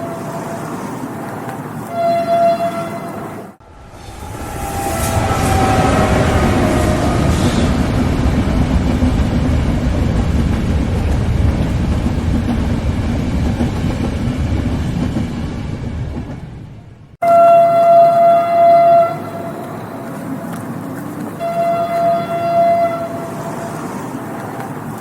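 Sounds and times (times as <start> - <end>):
train wheels rumbling on rails: 0.0 - 17.2
train horn: 1.8 - 8.2, 17.2 - 20.3, 21.4 - 23.9.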